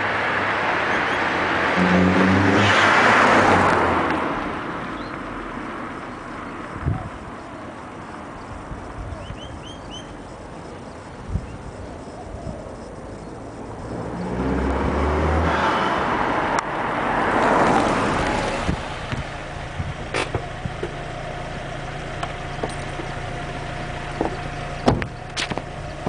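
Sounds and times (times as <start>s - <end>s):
car engine accelerating: 0.2s - 7.2s, 13.0s - 26.0s.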